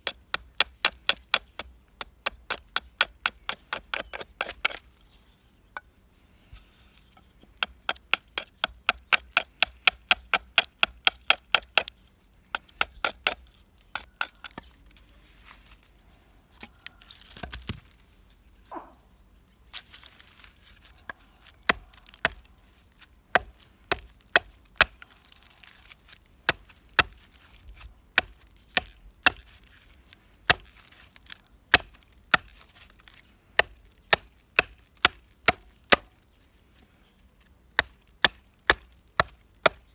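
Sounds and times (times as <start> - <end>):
hand tool chopping wood: 0.0 - 4.9, 21.0 - 22.5, 23.3 - 29.8, 30.4 - 36.2, 37.8 - 39.9.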